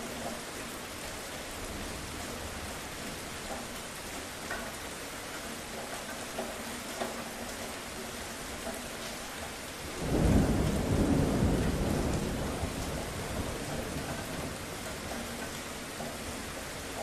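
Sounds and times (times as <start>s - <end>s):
steady rainfall: 0.0s - 17.0s
thunder rumbling: 10.0s - 15.5s.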